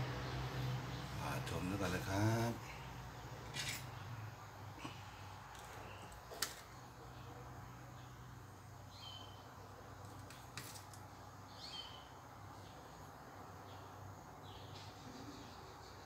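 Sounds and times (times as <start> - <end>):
bird chirping: 7.0 - 9.8, 11.4 - 16.0.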